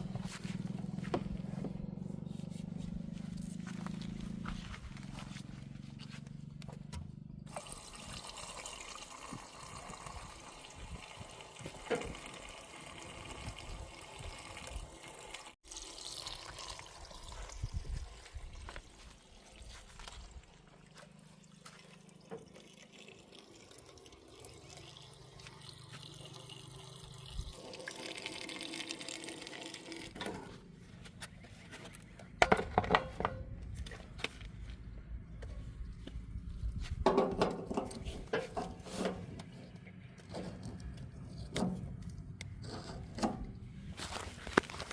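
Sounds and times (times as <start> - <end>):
diesel engine running: 0.0 - 7.9
mud sloshing and scraping: 17.1 - 22.9, 37.1 - 44.9.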